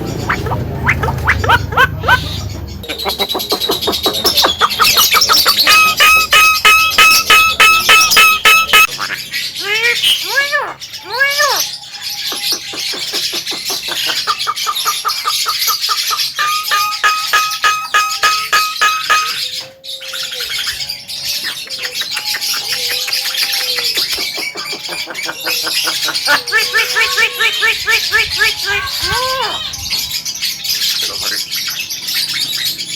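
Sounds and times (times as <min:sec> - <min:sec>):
myna chattering: 0:00.0 - 0:19.5, 0:21.5 - 0:29.8.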